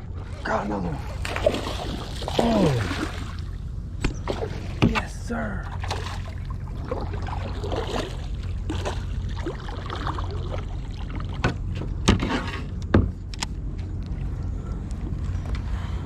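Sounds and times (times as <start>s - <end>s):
water trickling: 0.0s - 11.4s
steady low rumble: 0.0s - 16.0s.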